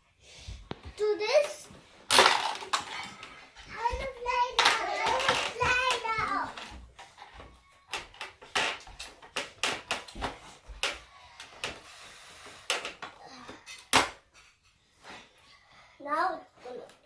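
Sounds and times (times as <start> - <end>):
plastic toys clicking and knocking: 1.3 - 14.7.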